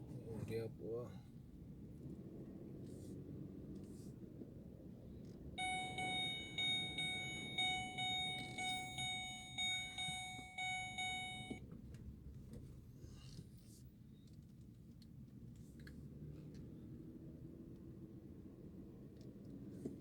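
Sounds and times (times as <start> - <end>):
electronic chime beeps: 5.6 - 11.6
low steady rumble: 5.6 - 11.6.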